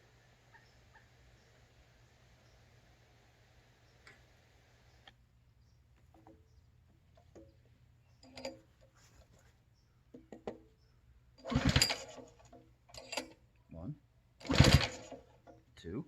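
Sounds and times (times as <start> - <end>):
recoil starter cord pull: 11.4 - 13.4, 14.4 - 15.6.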